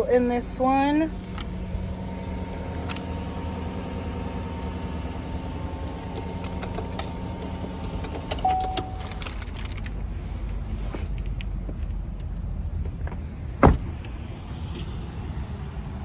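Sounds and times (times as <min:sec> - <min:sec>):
pickup truck idling: 0:00.0 - 0:16.0
short steady tone: 0:08.4 - 0:09.4.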